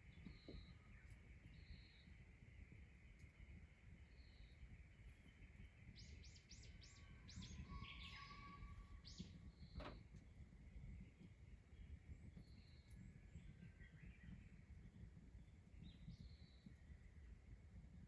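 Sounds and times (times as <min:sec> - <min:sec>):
bird chirping: 0:00.0 - 0:10.0
quiet rural background: 0:00.0 - 0:18.0.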